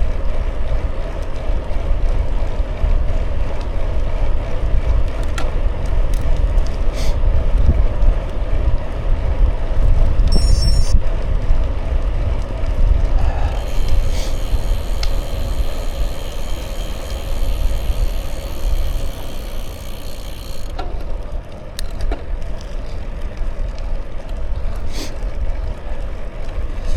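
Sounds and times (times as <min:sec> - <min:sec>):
tyres rolling on road: 0:00.0 - 0:10.3, 0:10.9 - 0:26.9
wind buffeting microphone: 0:00.0 - 0:20.7
light ticks: 0:12.0 - 0:20.9.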